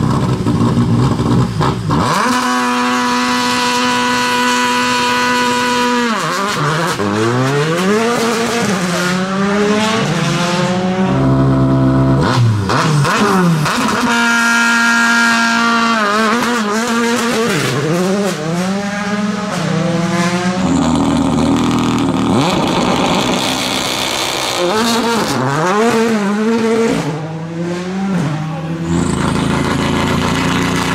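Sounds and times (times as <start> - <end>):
rally car engine revving: 0.0 - 30.9.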